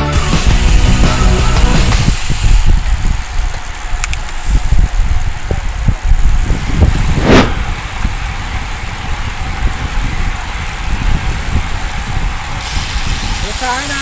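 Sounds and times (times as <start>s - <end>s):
road noise rumble: 1.8s - 14.0s
wind buffeting microphone: 1.8s - 14.0s
loud whoosh: 6.8s - 7.9s.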